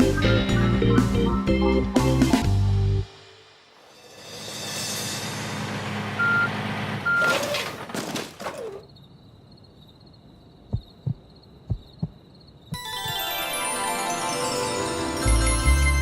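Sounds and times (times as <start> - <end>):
soft low thuds: 10.7 - 12.8.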